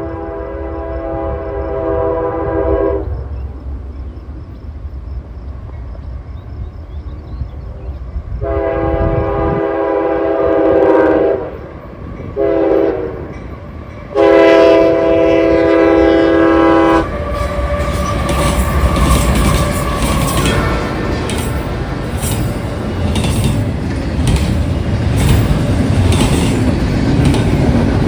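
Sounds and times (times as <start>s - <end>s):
locomotive air horn: 0.0s - 3.1s, 8.4s - 11.6s, 12.4s - 13.3s, 14.1s - 21.8s
train rumble: 0.0s - 28.0s
train cars rattling on rails: 3.0s - 28.0s.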